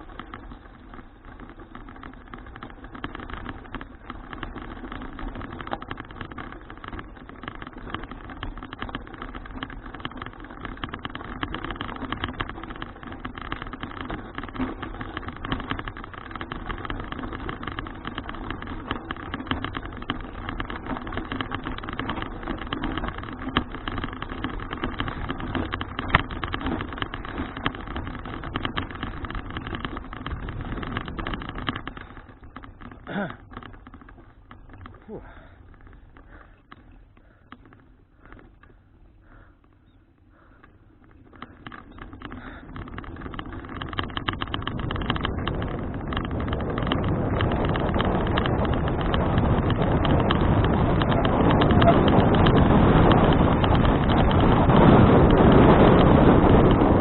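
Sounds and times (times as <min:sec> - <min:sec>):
bicycle frame rattling: 0:00.0 - 0:57.0
bicycle tyre roar on road: 0:00.0 - 0:57.0
wind buffeting: 0:38.1 - 0:57.0.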